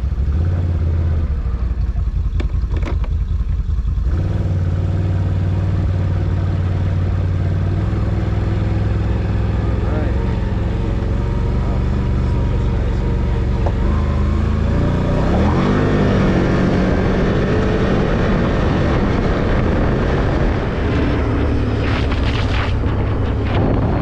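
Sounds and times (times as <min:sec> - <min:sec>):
off-road vehicle engine revving: 0:00.0 - 0:24.0
tyre and trail noise: 0:02.0 - 0:24.0
rattling knocks: 0:02.4 - 0:03.2.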